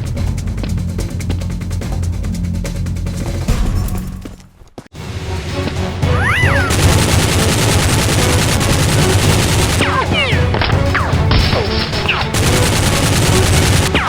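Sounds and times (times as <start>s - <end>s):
action background music: 0.0s - 14.0s
rapid gunfire: 6.6s - 14.0s.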